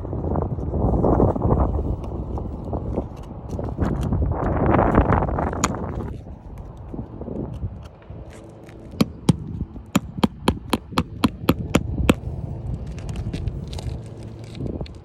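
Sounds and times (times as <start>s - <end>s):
sharp hammer strikes: 9.0s - 12.2s.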